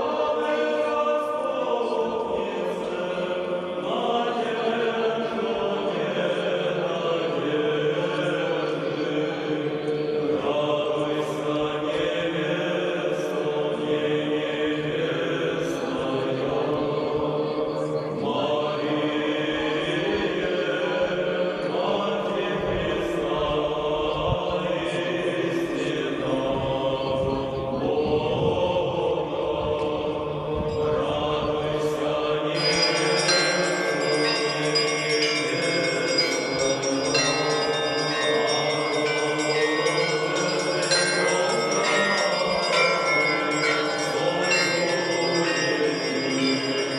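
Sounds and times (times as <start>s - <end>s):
group chanting in held notes: 0.0s - 46.9s
bells ringing: 30.5s - 46.9s.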